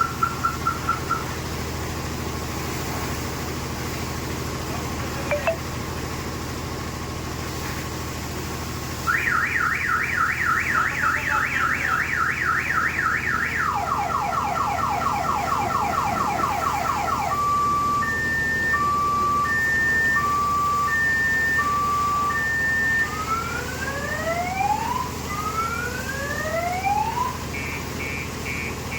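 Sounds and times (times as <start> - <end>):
car alarm siren: 0.0 - 1.3, 9.1 - 28.9.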